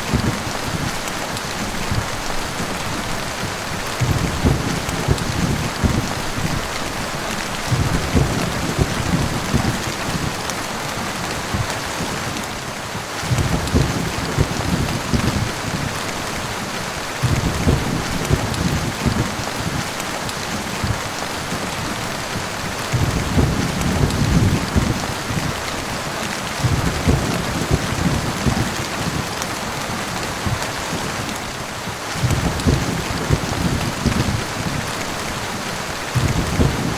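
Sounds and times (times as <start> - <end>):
low rumble of thunder: 0.0 - 10.4, 13.2 - 16.1, 17.2 - 19.9, 22.9 - 25.7, 26.5 - 29.4, 32.1 - 35.5, 36.1 - 36.9
rain falling on a surface: 0.0 - 36.9.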